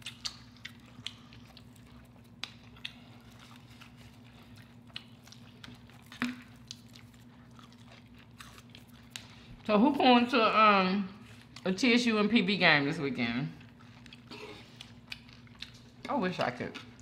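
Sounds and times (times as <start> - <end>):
biting and chewing fried food: 0.0 - 9.7, 13.6 - 17.0.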